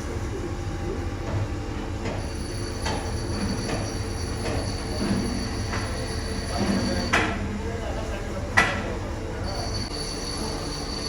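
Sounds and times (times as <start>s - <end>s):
thin high whine: 9.3s - 11.0s.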